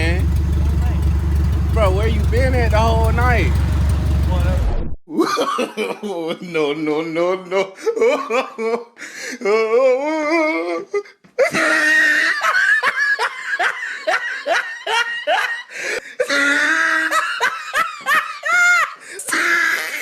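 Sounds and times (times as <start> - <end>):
men laughing: 5.1 - 9.8, 10.4 - 20.0.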